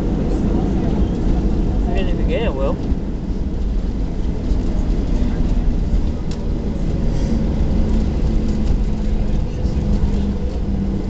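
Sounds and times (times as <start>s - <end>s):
airplane cabin rumble: 0.0s - 11.0s
jet engine hum: 0.0s - 11.0s.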